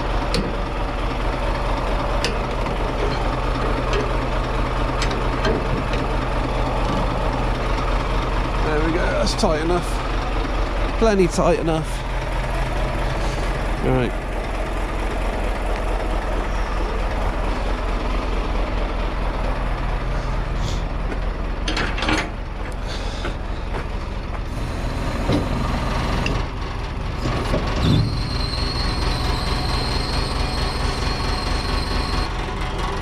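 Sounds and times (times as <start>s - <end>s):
truck engine idling: 0.0s - 33.0s
knocks and clanks of load: 2.2s - 7.2s, 21.1s - 24.0s, 25.1s - 26.5s, 27.1s - 28.2s
steady high whine: 24.4s - 32.3s.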